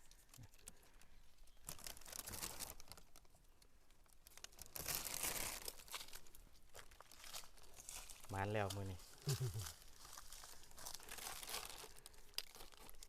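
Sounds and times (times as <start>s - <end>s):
dry leaves rustling and crackling: 1.6s - 3.3s, 4.2s - 13.0s.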